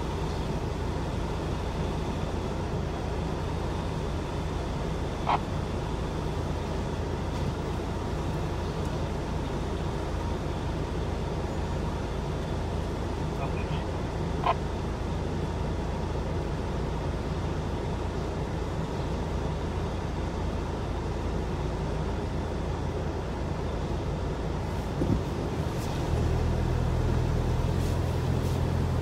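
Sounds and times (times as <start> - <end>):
car engine idling: 0.0 - 29.0
deep engine drone: 0.0 - 29.0.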